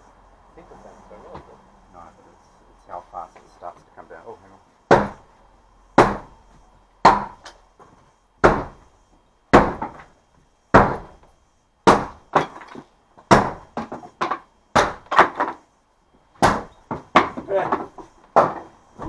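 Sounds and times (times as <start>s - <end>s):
hammer striking wooden boards: 4.9s - 5.2s, 6.0s - 6.3s, 7.0s - 7.5s, 8.4s - 8.8s, 9.5s - 10.1s, 10.7s - 11.2s, 11.8s - 15.6s, 16.4s - 18.7s.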